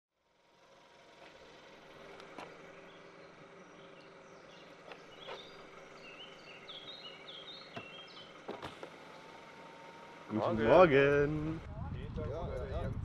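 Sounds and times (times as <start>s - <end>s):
steady low hum: 0.2s - 13.0s
bird chirping: 1.9s - 10.9s.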